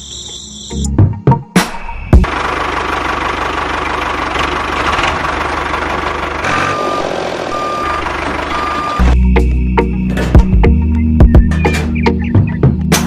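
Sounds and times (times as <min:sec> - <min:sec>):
tractor engine chugging: 0:02.2 - 0:09.2
reversing beeper: 0:06.4 - 0:09.2.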